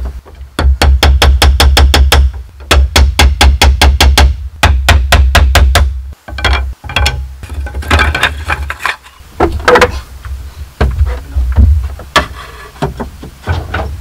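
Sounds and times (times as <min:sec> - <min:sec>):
sharp strikes on bamboo: 0:00.0 - 0:07.4
wooden knocks and clatter: 0:05.2 - 0:10.0, 0:10.8 - 0:14.0.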